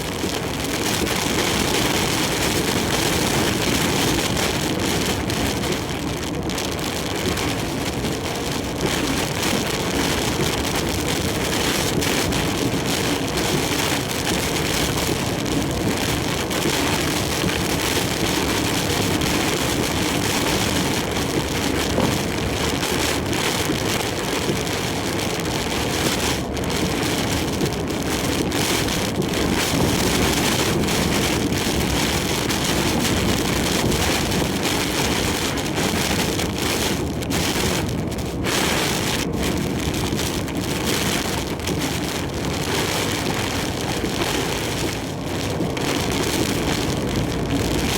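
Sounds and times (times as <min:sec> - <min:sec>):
heavy rain and wind on truck: 0:00.0 - 0:47.9
truck road noise: 0:23.6 - 0:47.9.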